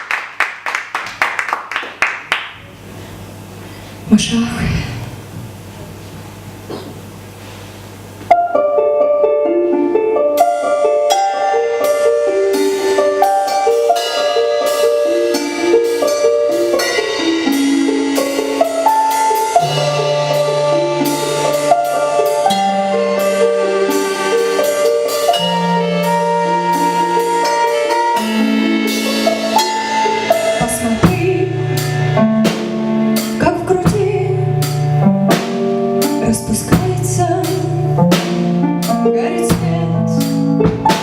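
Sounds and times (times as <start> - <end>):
low bass notes: 2.6 - 7.4, 14.9 - 41.0
low steady hum: 2.6 - 8.4
piano keyboard repeated notes: 8.3 - 41.0.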